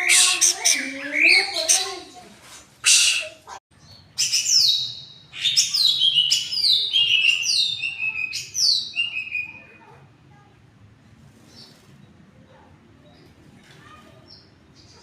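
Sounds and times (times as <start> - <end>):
bird whistling song: 2.8 - 3.3, 4.2 - 9.7.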